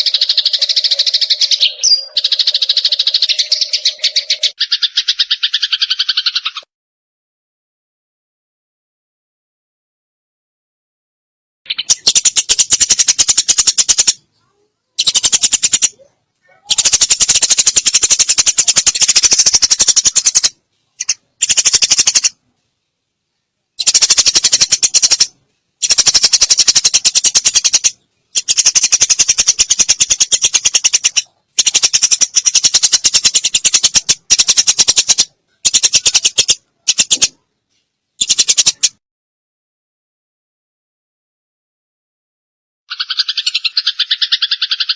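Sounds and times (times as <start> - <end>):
sparrow chirping: 0.0 - 6.6, 11.7 - 22.4, 23.8 - 37.4, 38.2 - 39.0, 42.9 - 44.9.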